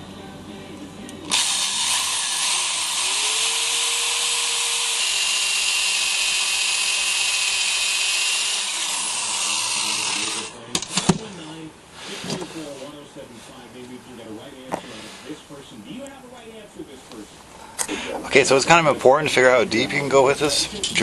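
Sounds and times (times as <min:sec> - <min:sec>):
electric drill boring into metal: 0:01.3 - 0:11.0.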